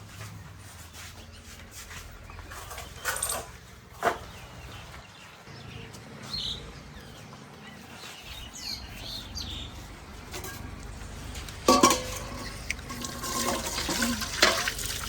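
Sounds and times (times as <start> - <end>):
faint birds chirping: 0.0 - 11.6.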